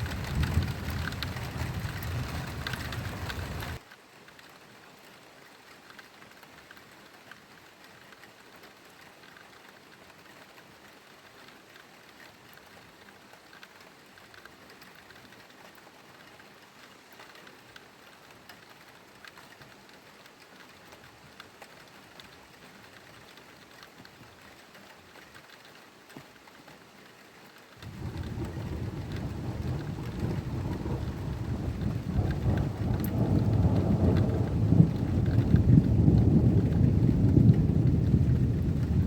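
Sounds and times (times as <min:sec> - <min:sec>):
thunder rumbling: 0:00.0 - 0:03.8, 0:27.8 - 0:39.0
steady rain: 0:00.0 - 0:39.0.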